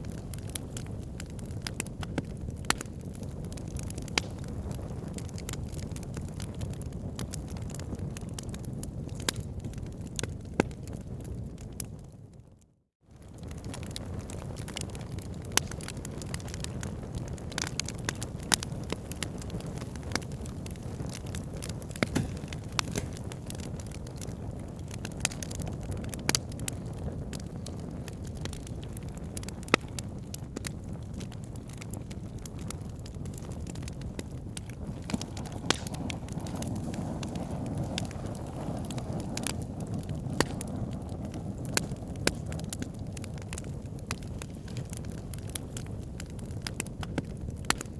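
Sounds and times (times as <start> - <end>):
fire crackling and popping: 0.0 - 47.9
fire rumbling: 0.0 - 47.9.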